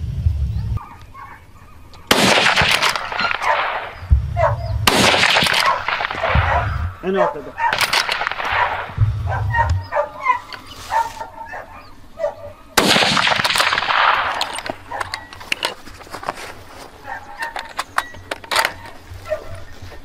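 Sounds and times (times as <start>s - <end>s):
gunshot echoing: 2.1s - 9.8s, 12.8s - 15.0s.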